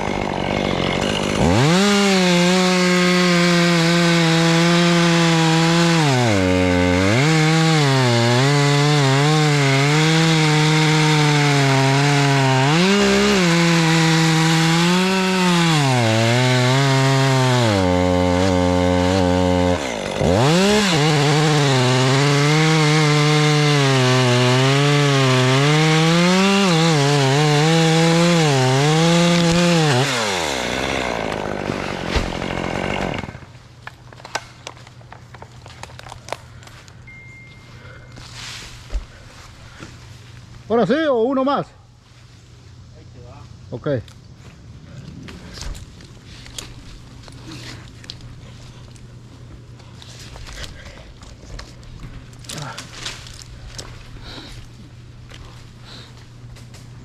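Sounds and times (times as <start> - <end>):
chainsaw cutting wood: 0.0 - 33.5.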